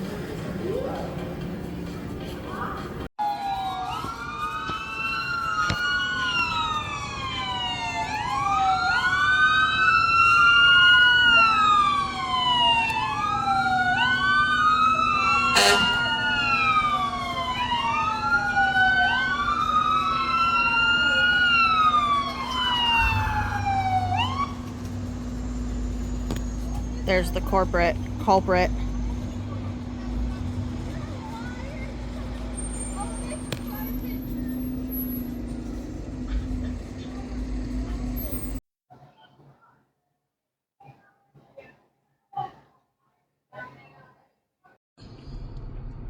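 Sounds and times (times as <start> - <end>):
emergency siren wailing: 0.3 - 1.6, 3.2 - 29.9.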